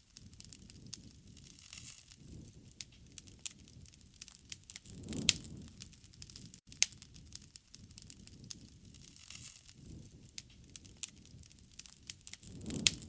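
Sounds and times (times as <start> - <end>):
low rumble of flames: 0.0 - 13.0
wood fire crackling: 0.0 - 13.0
sharp pops of fire: 0.1 - 13.0.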